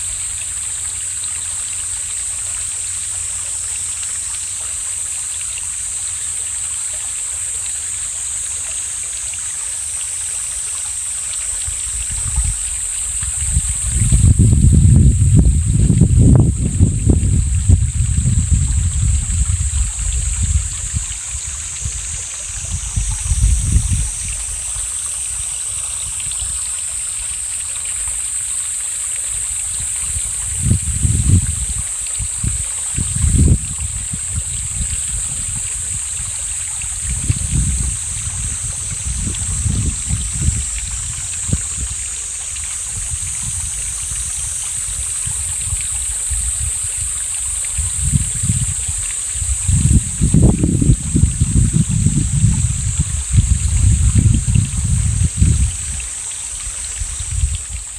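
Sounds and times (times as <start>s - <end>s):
stream running: 0.0s - 57.9s
wind rumbling on microphone: 11.5s - 27.6s, 29.4s - 57.9s.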